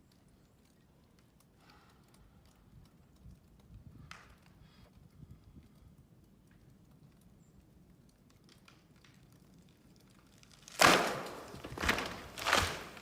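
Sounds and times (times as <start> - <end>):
faint light ticks and clicks: 0.0 - 10.2.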